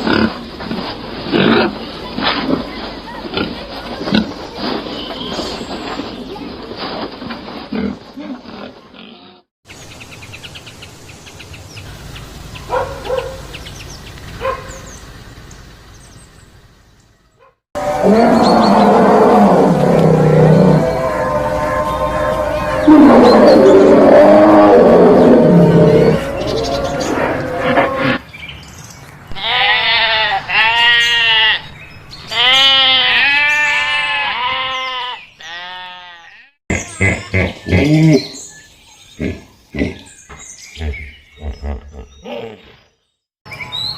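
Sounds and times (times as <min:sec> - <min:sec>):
small birds chirping: 0:01.9 - 0:06.7, 0:09.7 - 0:17.6, 0:34.6 - 0:43.9
goat bleating: 0:29.3 - 0:31.7, 0:32.3 - 0:36.5.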